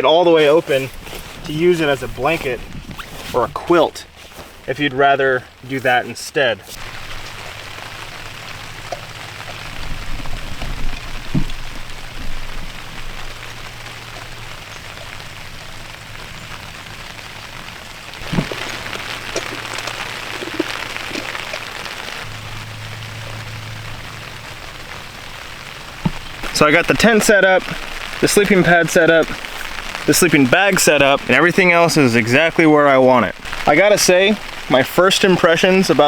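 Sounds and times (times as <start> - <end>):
rain on tent fabric: 0.0 - 36.0
handling knocks: 26.0 - 27.3.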